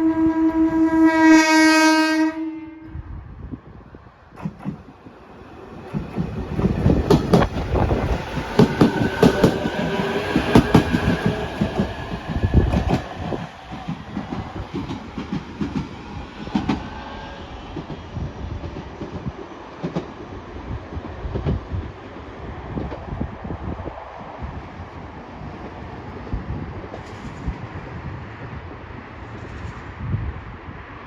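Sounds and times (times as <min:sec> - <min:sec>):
electric train passing: 0:02.9 - 0:31.0
train wheels clicking over joints: 0:04.3 - 0:16.9.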